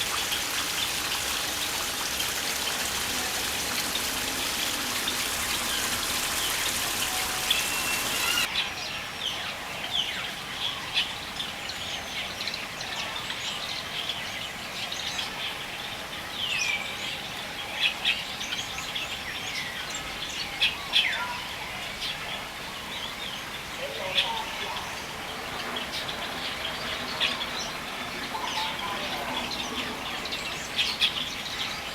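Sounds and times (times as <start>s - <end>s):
steady rain-like hiss: 0.0s - 31.9s
birds chirping and calling: 0.3s - 8.5s.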